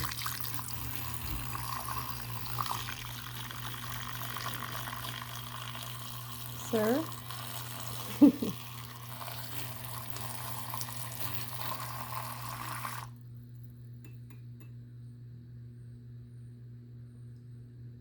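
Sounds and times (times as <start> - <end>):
water running from a tap: 0.0 - 13.2.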